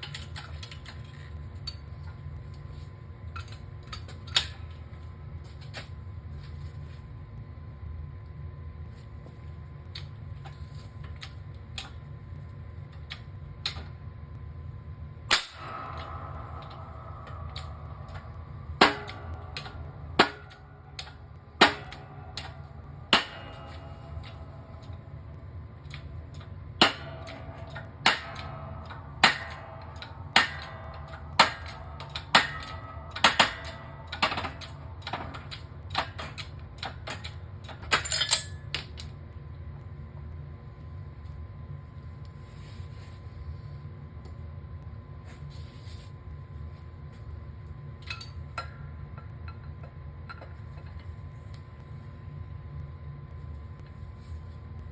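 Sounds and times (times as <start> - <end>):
steady low hum: 0.0 - 54.9
hammer striking metal: 15.3 - 38.7.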